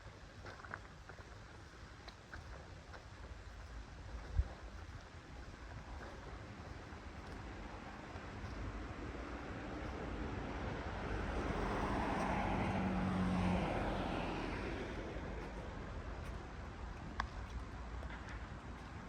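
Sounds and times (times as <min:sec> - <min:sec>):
vehicle passing by: 0:07.4 - 0:16.2.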